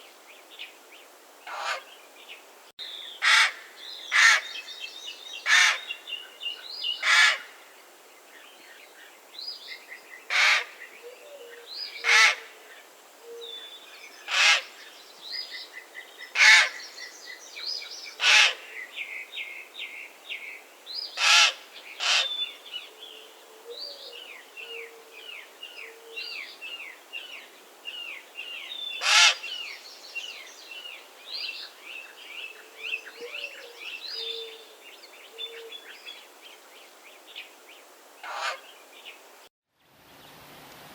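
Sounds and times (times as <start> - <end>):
raven harsh calls: 1.5 - 1.9, 3.2 - 4.6, 5.5 - 5.9, 7.0 - 7.6, 10.3 - 10.8, 12.0 - 12.6, 14.3 - 14.7, 16.4 - 16.8, 18.2 - 18.7, 21.2 - 22.4, 29.0 - 29.6, 38.2 - 38.7
small birds chirping: 21.8 - 39.3.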